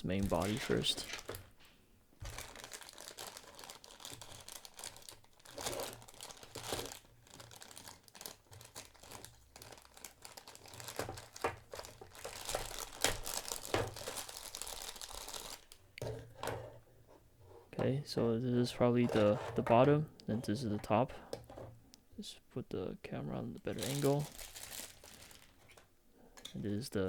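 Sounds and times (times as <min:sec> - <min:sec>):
plastic packaging crinkling and tearing: 0:00.0 - 0:01.5, 0:02.2 - 0:15.8, 0:23.7 - 0:25.9.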